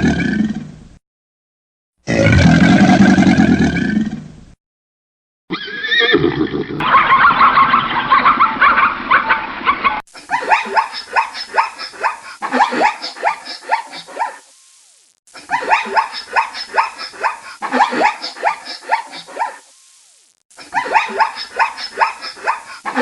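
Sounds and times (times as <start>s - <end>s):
animal pitched calling: 20.6s - 23.0s.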